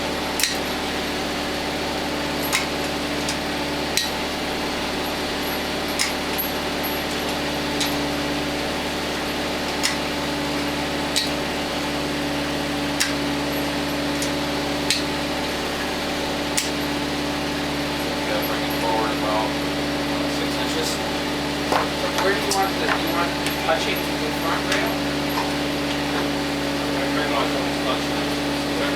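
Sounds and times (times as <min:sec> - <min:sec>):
steady mechanical hum: 0:00.0 - 0:28.9
sharp metallic clicks: 0:00.4 - 0:00.7, 0:02.4 - 0:03.4, 0:05.9 - 0:06.5, 0:09.7 - 0:10.1, 0:11.1 - 0:11.4, 0:13.0 - 0:13.2, 0:16.5 - 0:16.9.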